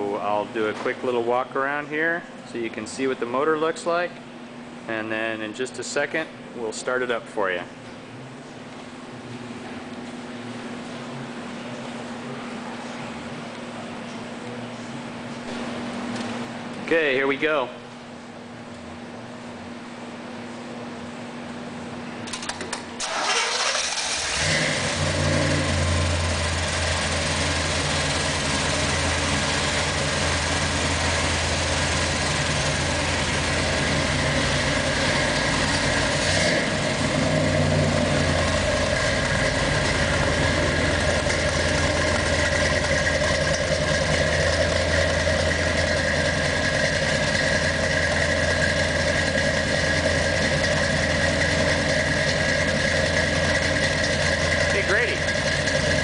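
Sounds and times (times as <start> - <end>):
car engine starting and idling: 22.2 - 56.0.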